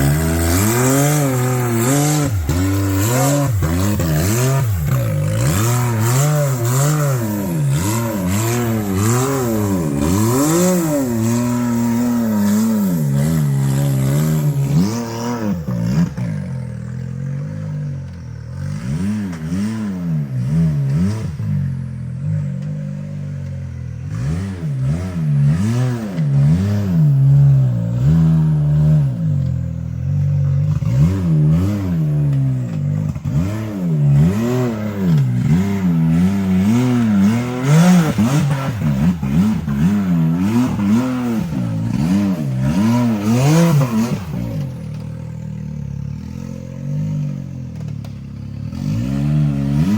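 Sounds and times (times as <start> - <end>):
utility vehicle engine revving: 0.0 - 49.9.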